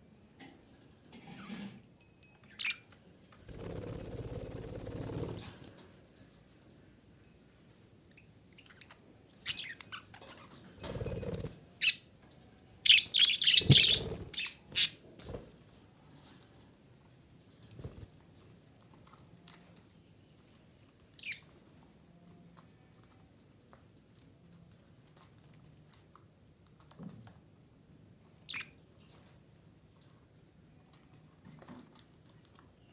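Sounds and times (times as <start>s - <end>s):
budgerigar chirping: 12.9s - 15.0s.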